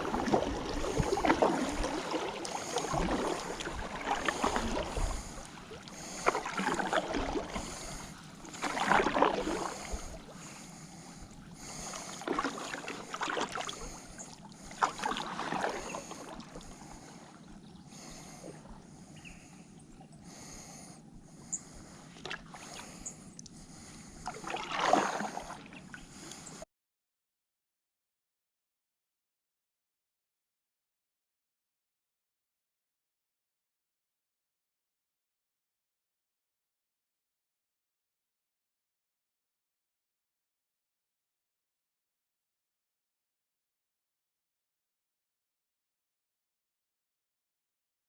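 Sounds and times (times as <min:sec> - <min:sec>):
paddle strokes splashing water: 0:00.0 - 0:19.5, 0:21.4 - 0:26.6
kayak gliding: 0:00.0 - 0:26.6.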